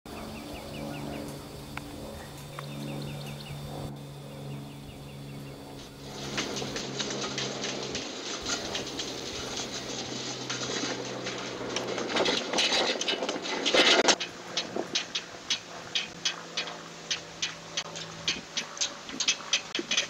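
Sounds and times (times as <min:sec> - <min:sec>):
small bird chirping: 0:00.1 - 0:07.4
steady low hum: 0:00.1 - 0:20.0
windmill sculpture rattling: 0:03.6 - 0:20.0.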